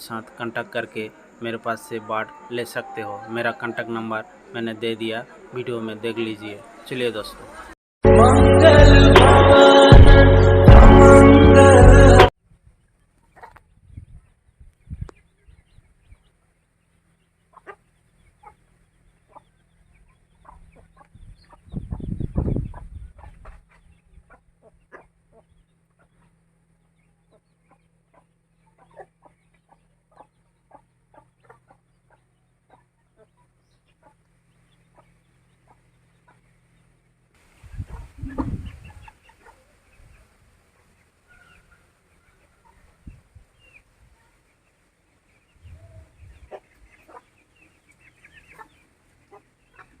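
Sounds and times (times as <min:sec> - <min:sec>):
chickens clucking: 0:12.8 - 0:50.0.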